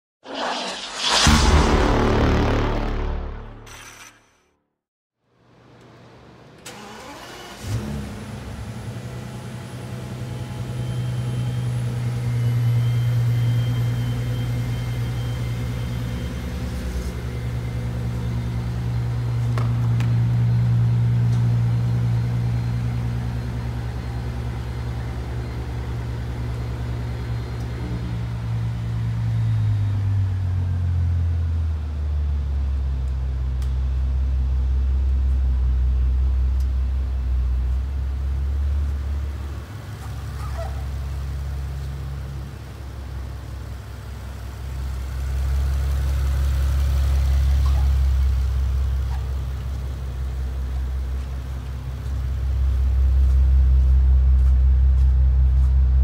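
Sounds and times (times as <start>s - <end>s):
car engine idling: 39.2s - 56.0s.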